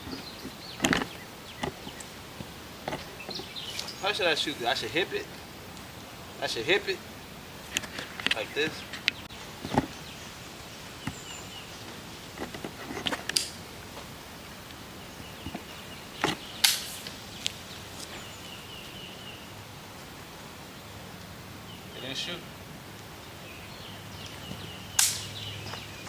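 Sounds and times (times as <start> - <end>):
outdoor background noise: 0.0 - 26.0
sharp clicks or knocks: 0.8 - 2.0.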